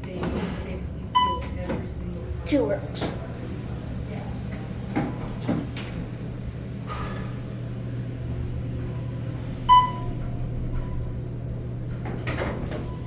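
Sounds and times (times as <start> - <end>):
elevator humming: 0.0 - 13.0.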